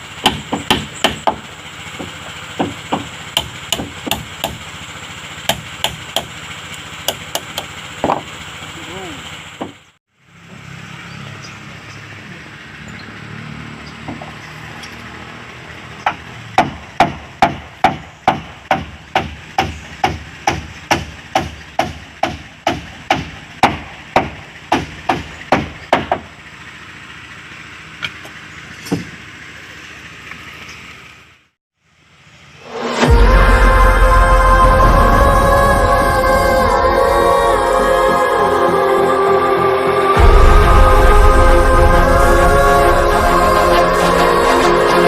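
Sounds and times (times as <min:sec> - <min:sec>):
hammer striking wood: 0:00.2 - 0:04.7, 0:05.5 - 0:06.3, 0:07.1 - 0:08.3, 0:16.0 - 0:26.3.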